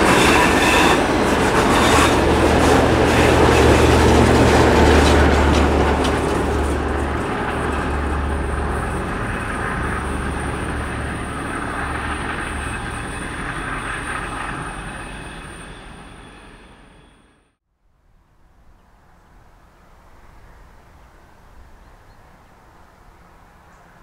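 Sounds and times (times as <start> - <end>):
train rolling past: 0.0 - 17.6.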